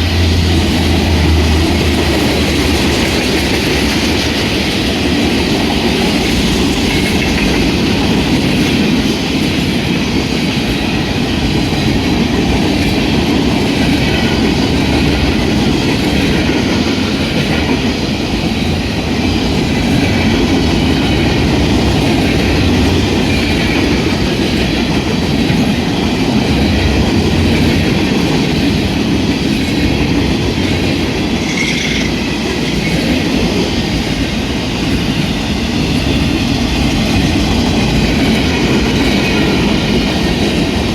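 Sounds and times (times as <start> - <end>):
freight train rolling past: 0.0 - 40.9
high squeal: 31.4 - 32.2.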